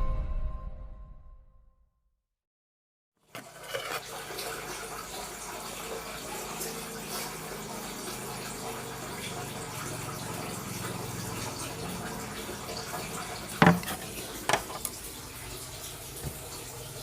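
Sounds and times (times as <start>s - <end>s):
hard knock: 13.6s - 13.9s.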